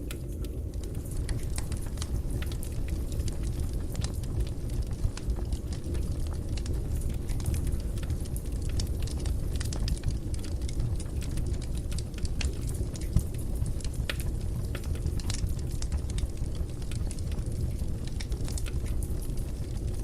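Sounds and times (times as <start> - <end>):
fire crackling and popping: 0.0 - 20.0
low steady rumble: 0.0 - 20.0.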